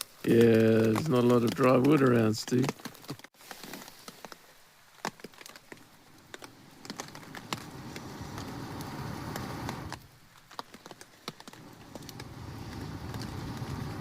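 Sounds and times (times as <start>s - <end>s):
fire crackling and popping: 0.0s - 14.0s
person blowing into fire: 6.6s - 10.0s, 11.6s - 14.0s.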